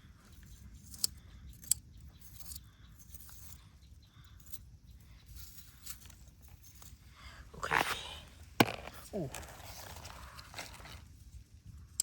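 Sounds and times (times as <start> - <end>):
rustling and scraping handling: 5.3 - 11.6.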